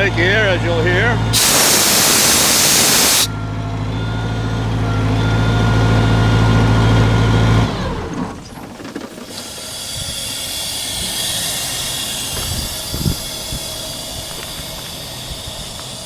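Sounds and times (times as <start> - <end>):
diesel engine running: 0.0 - 16.0
compressed air hissing: 1.4 - 3.3, 9.3 - 16.0.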